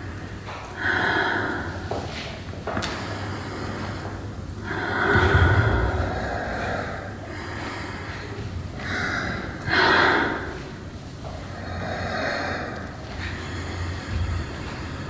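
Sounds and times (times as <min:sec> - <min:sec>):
heavy breathing: 0:00.5 - 0:15.0
low hum: 0:04.6 - 0:08.4.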